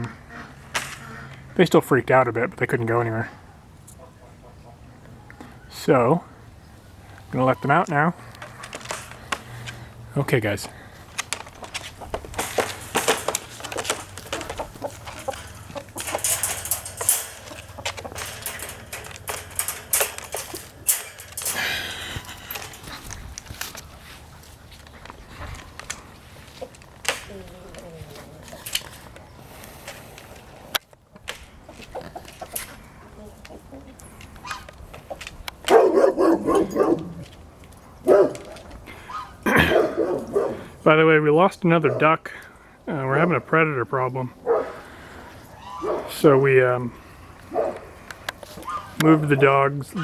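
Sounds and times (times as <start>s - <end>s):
rustle: 6.9s - 41.8s, 44.7s - 50.0s
clicks taps and scuffs: 10.5s - 32.8s
dog barking: 35.7s - 37.2s, 38.0s - 40.7s, 44.4s - 44.8s, 45.8s - 46.1s, 47.5s - 47.9s.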